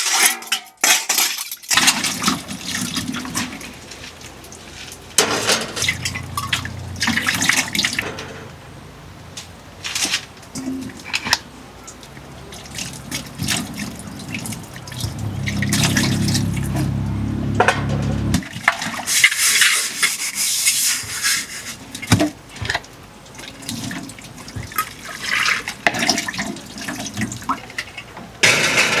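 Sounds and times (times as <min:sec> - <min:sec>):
water pouring and splashing: 0:00.0 - 0:08.1, 0:09.7 - 0:17.0, 0:18.4 - 0:28.0
low hum: 0:05.6 - 0:08.8, 0:12.1 - 0:18.4.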